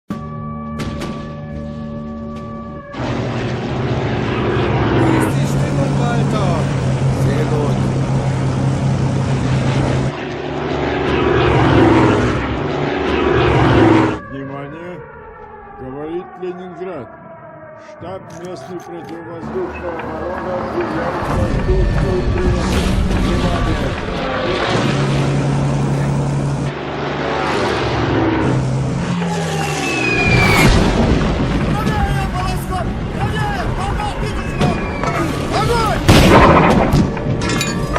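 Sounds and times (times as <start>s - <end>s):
propeller plane engine droning: 0.1s - 37.9s.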